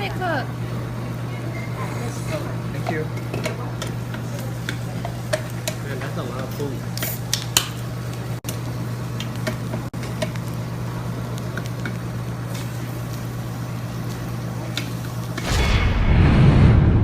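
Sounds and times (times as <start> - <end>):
meat sizzling on a grill: 1.7 - 15.4
deep rumbling whoosh: 15.4 - 17.0.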